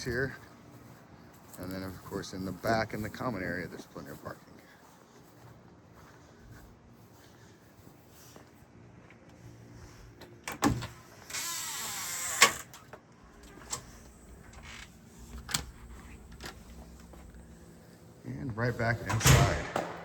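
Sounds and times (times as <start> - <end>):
door sliding hiss: 10.5 - 18.1
door clunk: 19.0 - 20.0.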